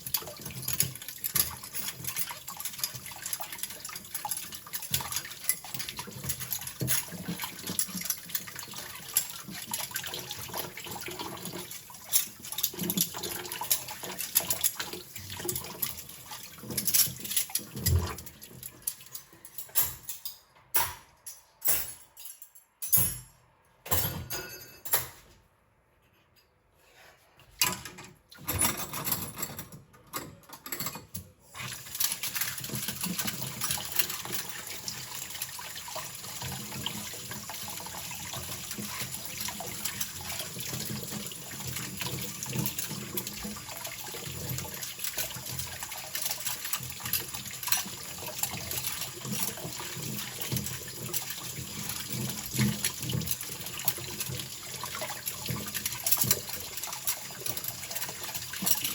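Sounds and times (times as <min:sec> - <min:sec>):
cutlery clinking: 0:18.8 - 0:25.3.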